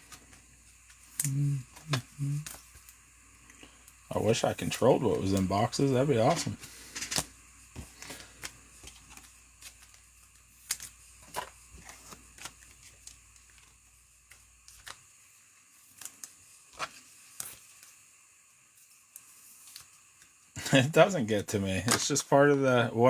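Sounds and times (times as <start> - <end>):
trading cards clicking and snapping: 10.6 - 13.7.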